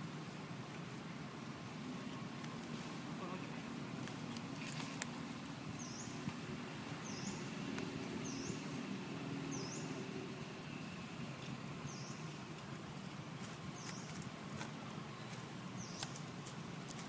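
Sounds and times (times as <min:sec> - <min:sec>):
bird chirping: 0:05.7 - 0:16.3.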